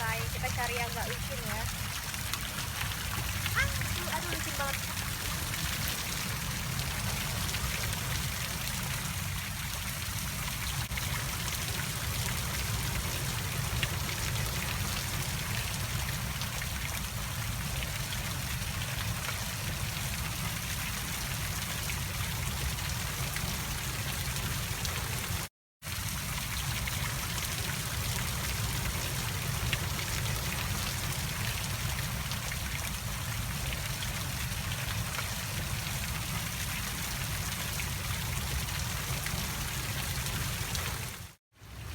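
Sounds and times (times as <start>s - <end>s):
waterfall and river roar: 0.0s - 17.2s, 26.8s - 32.8s.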